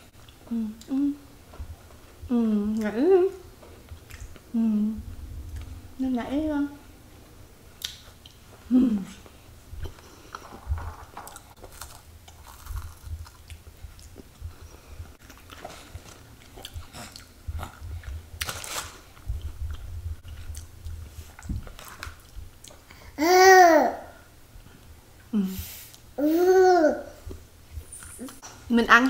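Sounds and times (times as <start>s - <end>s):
chewing and crunching: 11.2s - 22.9s.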